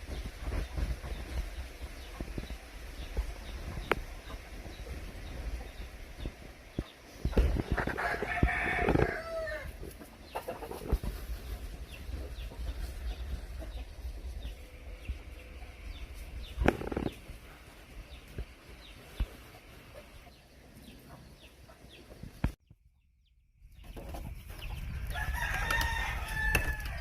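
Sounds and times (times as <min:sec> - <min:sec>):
rooster crowing: 0:08.0 - 0:09.7, 0:25.1 - 0:27.0.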